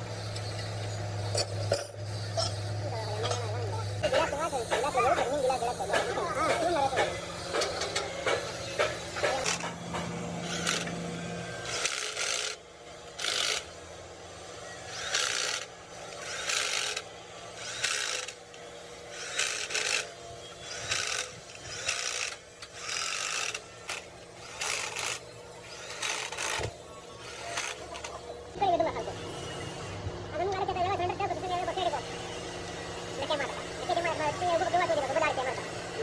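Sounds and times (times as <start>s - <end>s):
hand tool filing strokes: 0.1s - 10.9s.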